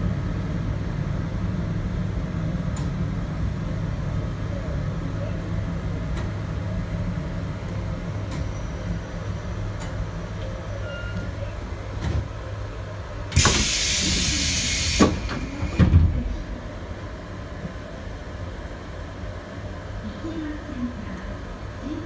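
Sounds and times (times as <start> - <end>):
electric train rumbling: 0.0 - 22.0
loud rush of hiss: 13.3 - 15.8.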